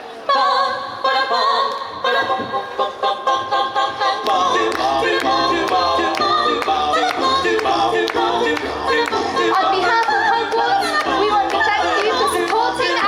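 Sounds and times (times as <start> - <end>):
a cappella choir singing: 0.0 - 13.0.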